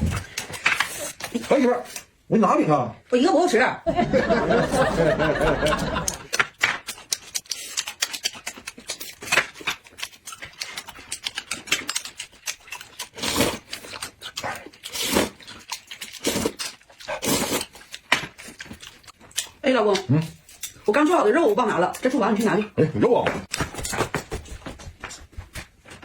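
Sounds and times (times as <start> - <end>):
person laughing: 4.0 - 6.3
wet chewing and mouth smacks: 5.7 - 20.9.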